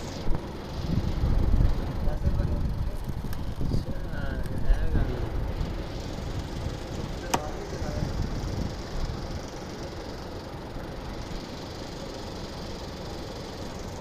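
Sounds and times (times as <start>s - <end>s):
machine rumble with hiss: 0.0s - 14.0s.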